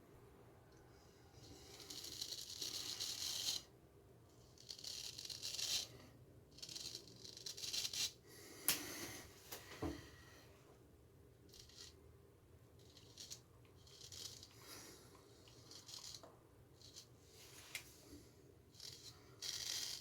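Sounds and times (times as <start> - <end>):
razor scraping stubble: 11.5 - 12.0, 12.8 - 14.8, 15.4 - 17.1, 18.8 - 20.0.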